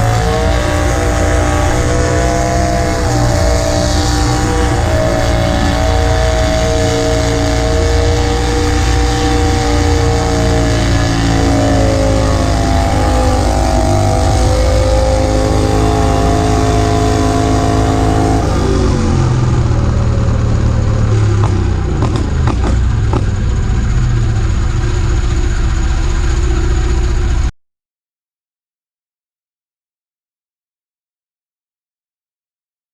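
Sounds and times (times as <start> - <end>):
tractor engine running hard: 0.0 - 27.5
engine knocks: 19.1 - 27.5.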